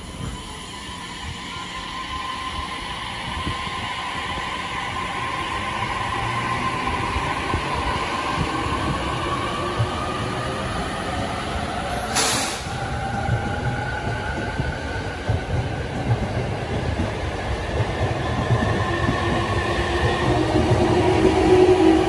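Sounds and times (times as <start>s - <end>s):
train wheels rumbling: 0.0s - 22.0s
burst of hiss: 12.0s - 12.8s.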